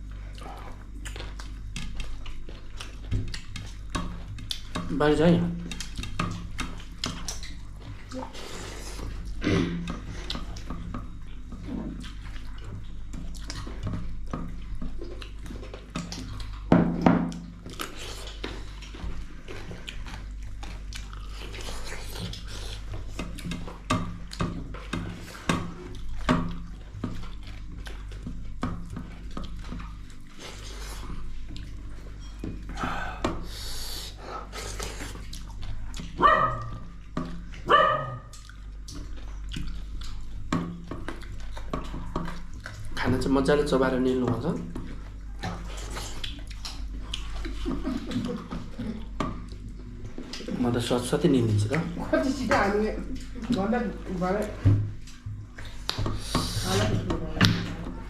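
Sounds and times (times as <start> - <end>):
clicks and clatter of eating: 0.0 - 33.4, 34.6 - 58.0
chewing and smacking: 0.0 - 33.5, 34.4 - 58.0
dog barking: 36.2 - 36.8, 37.6 - 38.3.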